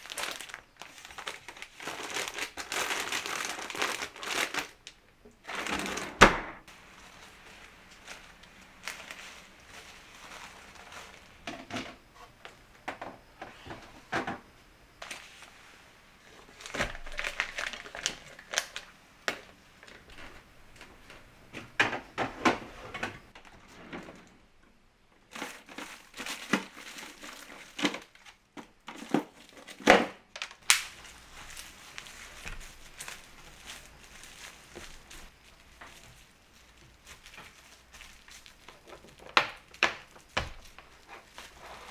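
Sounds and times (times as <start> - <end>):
plastic packaging crackling: 0.0 - 12.6, 16.3 - 20.3, 25.3 - 41.9.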